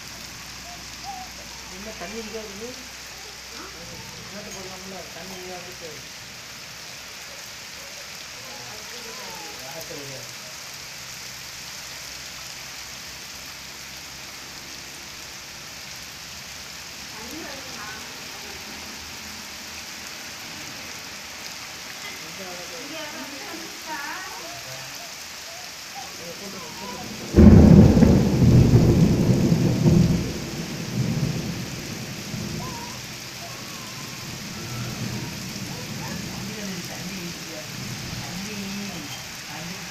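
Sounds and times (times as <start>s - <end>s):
rain pattering: 0.0s - 39.9s
thunderclap rumbling low: 27.0s - 36.6s.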